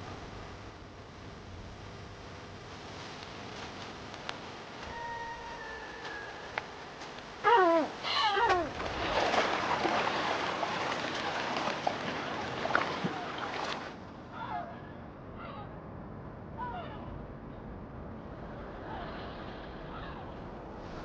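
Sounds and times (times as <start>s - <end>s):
high wavering animal calls: 4.8s - 6.8s, 7.4s - 8.7s
water splashing: 8.3s - 14.0s.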